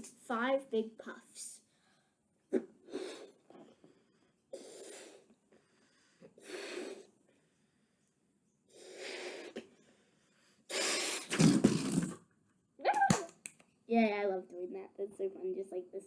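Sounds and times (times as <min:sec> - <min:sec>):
person blowing into balloon: 0:02.5 - 0:03.7, 0:04.5 - 0:05.3, 0:06.4 - 0:07.1, 0:08.7 - 0:09.8, 0:10.7 - 0:12.2.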